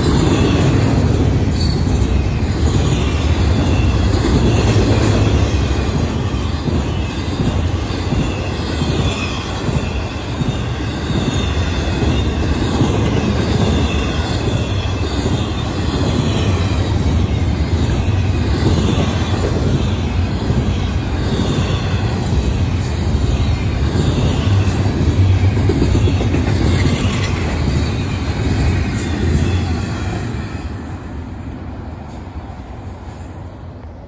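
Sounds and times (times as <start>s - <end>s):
high wheel squeal: 0.0s - 31.2s
train wheels rumbling on rails: 0.0s - 34.0s.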